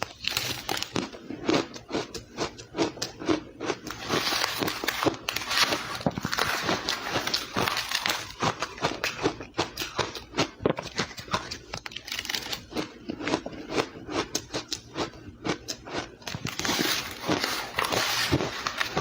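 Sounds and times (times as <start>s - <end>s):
ice crunching while chewed: 0.0s - 19.0s.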